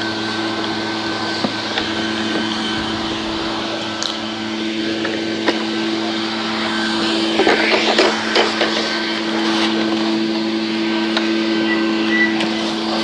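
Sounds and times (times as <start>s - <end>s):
motor humming: 1.2s - 5.7s.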